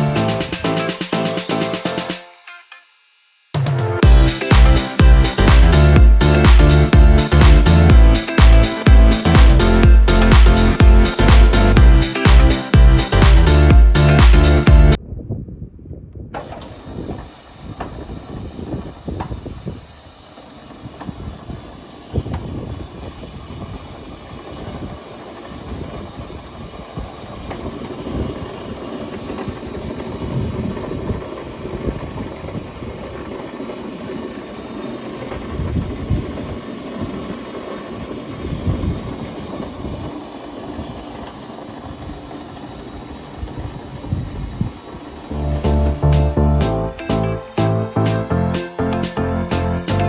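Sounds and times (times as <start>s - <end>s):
glue machine motor rumbling: 4.1s - 15.0s.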